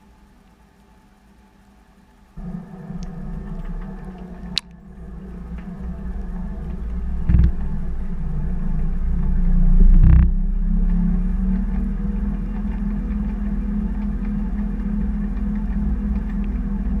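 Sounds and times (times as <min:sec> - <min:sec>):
washing machine motor hum: 0:02.3 - 0:17.0
dull heavy thumps: 0:02.4 - 0:10.7.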